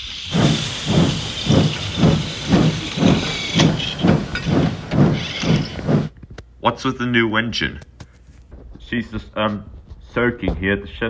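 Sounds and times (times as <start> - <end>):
steam hissing: 0.0 - 6.1
steam locomotive chuffing: 0.0 - 6.1.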